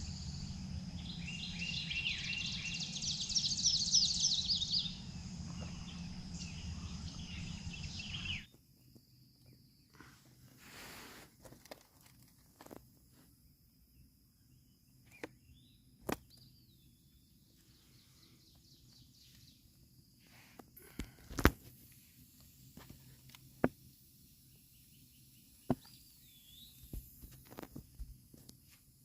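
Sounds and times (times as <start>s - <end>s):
bird looping whistle: 0.0s - 8.5s.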